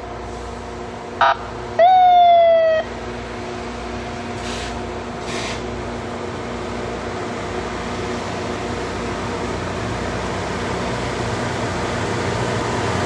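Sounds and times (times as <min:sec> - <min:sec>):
rail grinder train roaring: 0:00.0 - 0:13.0
short hisses: 0:04.4 - 0:05.7.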